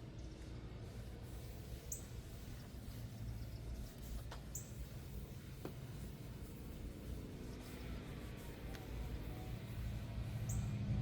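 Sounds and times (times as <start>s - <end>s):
steady low hum: 0.0s - 11.0s
small bird chirping: 1.9s - 2.2s, 4.5s - 4.8s, 10.4s - 10.8s.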